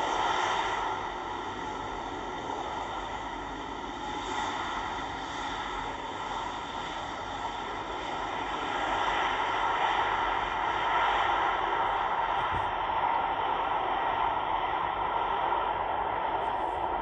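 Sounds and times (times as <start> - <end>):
jet engines rushing: 8.6 - 17.0.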